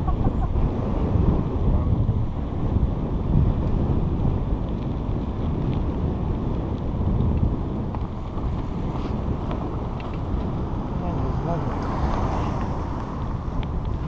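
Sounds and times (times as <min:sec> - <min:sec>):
bicycle tyre noise on trail: 0:00.0 - 0:14.0
wind buffeting microphone: 0:00.0 - 0:14.0.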